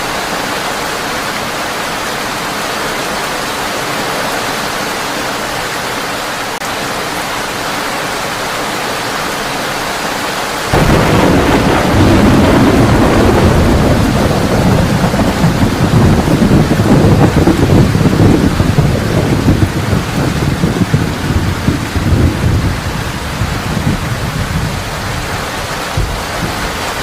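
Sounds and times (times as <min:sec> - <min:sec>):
heavy rain on a tin roof: 0:00.0 - 0:27.0
rolling thunder: 0:10.7 - 0:27.0.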